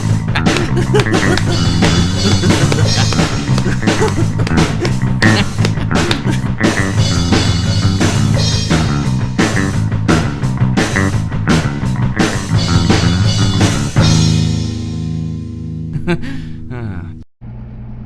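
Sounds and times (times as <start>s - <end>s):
drum kit: 0.0s - 15.4s
electric guitar: 0.0s - 16.0s
rock music: 0.0s - 16.4s.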